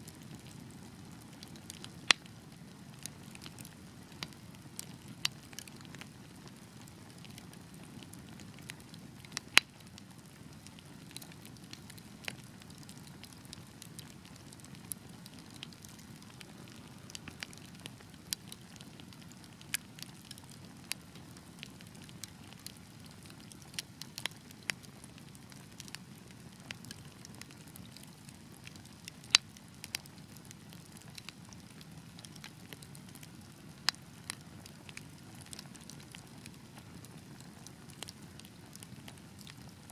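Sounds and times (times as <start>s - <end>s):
fire rumbling and crackling: 0.0s - 39.9s
sharp pops from fire: 8.6s - 9.9s, 29.2s - 30.0s.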